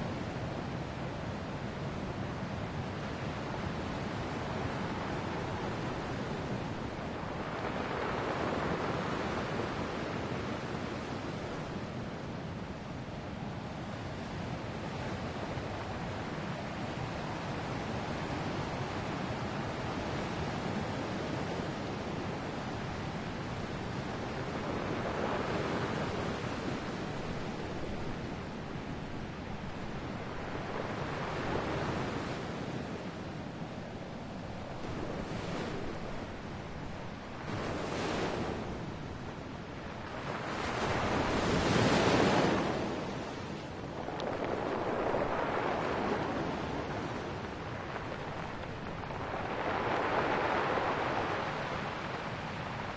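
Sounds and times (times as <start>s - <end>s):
ocean waves breaking: 2.6s - 12.7s, 13.7s - 52.9s.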